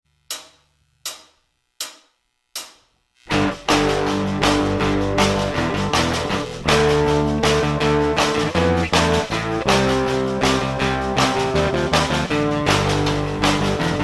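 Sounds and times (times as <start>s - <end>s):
rock band playing: 3.3s - 14.0s.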